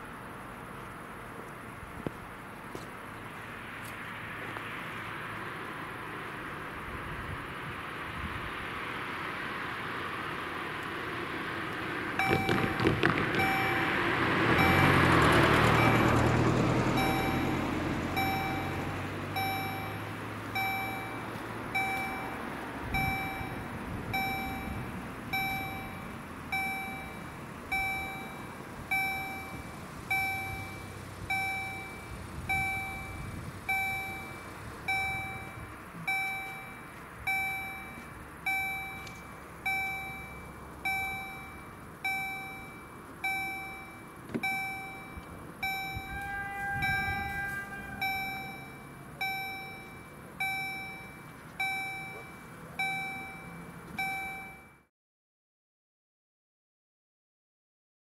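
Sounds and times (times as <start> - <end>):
road vehicle passing: 0.0 - 54.7
level crossing warning bell: 12.2 - 54.9.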